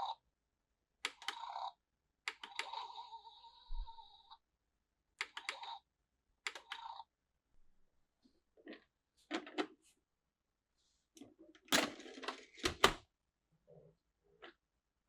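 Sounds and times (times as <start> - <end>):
plastic toy parts clicking: 1.0 - 1.5, 2.3 - 2.8.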